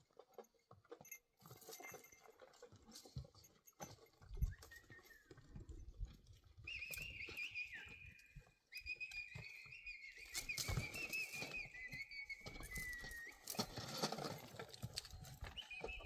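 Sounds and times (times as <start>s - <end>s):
person whistling: 6.7s - 13.9s, 15.5s - 16.0s.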